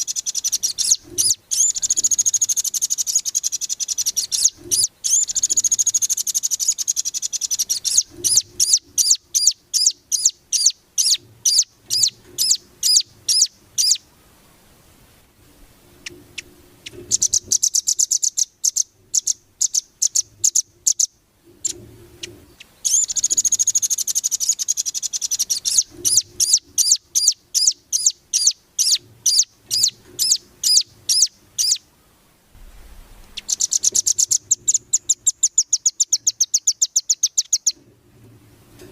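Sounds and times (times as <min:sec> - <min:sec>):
bird calling high sharp chips: 0:00.0 - 0:14.0, 0:22.6 - 0:31.8, 0:33.2 - 0:37.8
bird rattling trills: 0:00.0 - 0:14.0, 0:16.0 - 0:31.8, 0:32.6 - 0:37.8.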